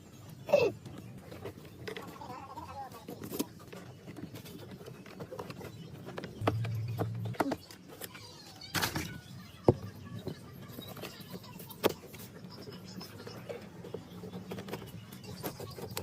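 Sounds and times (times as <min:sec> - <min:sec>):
brief low hum: 0:06.4 - 0:07.6.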